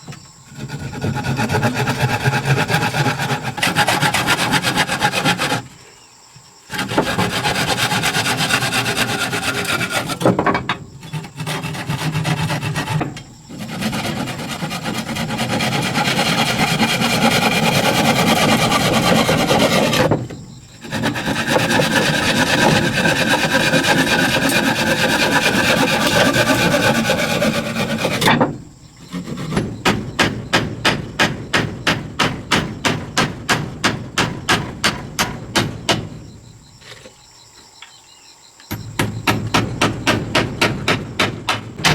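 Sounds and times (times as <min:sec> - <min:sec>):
abrasive scrubbing on a surface: 0:11.0 - 0:20.2, 0:20.8 - 0:28.3.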